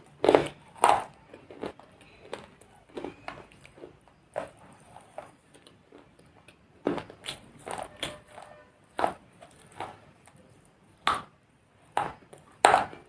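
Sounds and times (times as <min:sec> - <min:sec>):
hard objects knocking and clicking: 0:06.8 - 0:10.4, 0:11.0 - 0:13.0.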